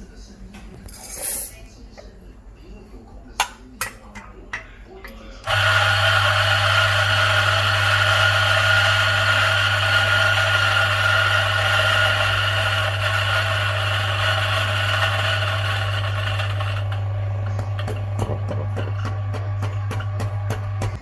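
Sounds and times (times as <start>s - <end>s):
espresso machine pump humming: 5.5s - 21.0s.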